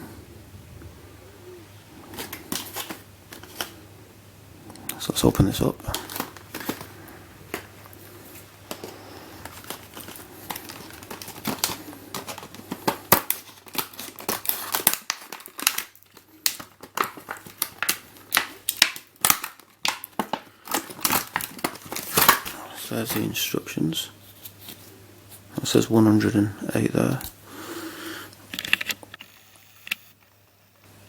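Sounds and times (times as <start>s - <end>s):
packaging crackles and clicks: 2.1s - 3.8s, 4.7s - 23.6s, 28.3s - 30.3s
toy packaging crinkling: 2.1s - 3.8s, 5.0s - 27.4s.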